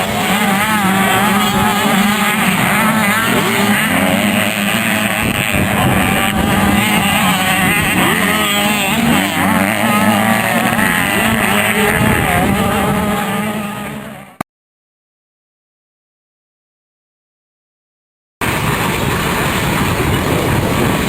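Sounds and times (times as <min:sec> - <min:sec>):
motocross bike engines revving: 0:00.0 - 0:14.4.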